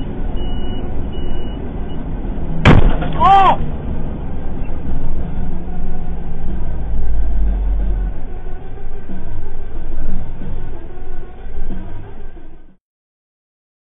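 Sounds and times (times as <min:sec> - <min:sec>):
truck road and engine noise: 0:00.0 - 0:12.8
rock smashing into windscreen: 0:02.6 - 0:03.2.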